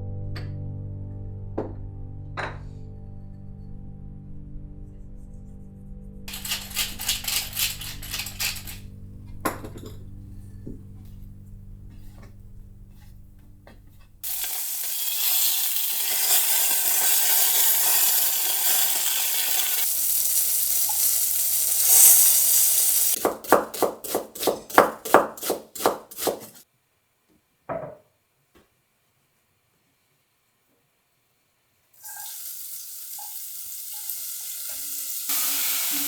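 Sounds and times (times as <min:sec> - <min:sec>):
stirring or scraping strokes: 0:06.3 - 0:08.9, 0:11.9 - 0:23.2, 0:23.9 - 0:26.6
food sizzling in a pot: 0:14.2 - 0:23.2, 0:32.0 - 0:36.0.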